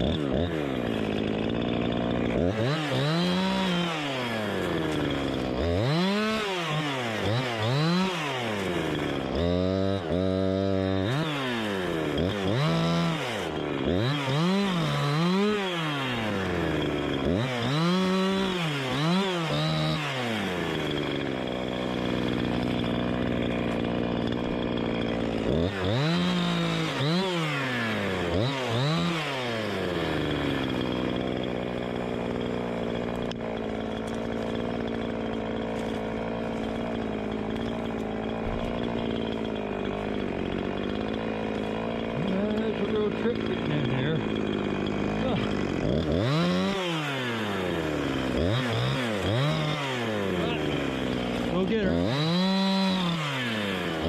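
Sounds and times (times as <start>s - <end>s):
chainsaw engine revving: 0.0s - 54.0s.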